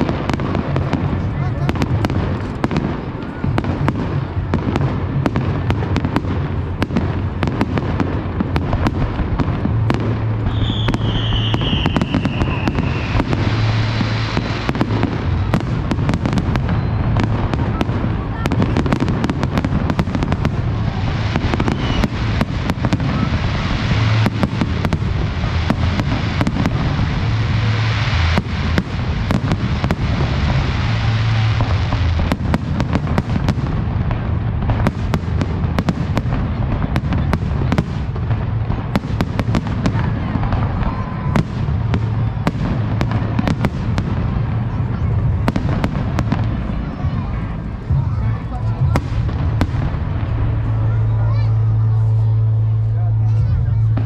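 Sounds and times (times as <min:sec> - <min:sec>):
fireworks bangs and crackles: 0:00.0 - 0:54.0
whistling firework shell: 0:10.4 - 0:13.5, 0:16.4 - 0:17.8, 0:21.5 - 0:22.4.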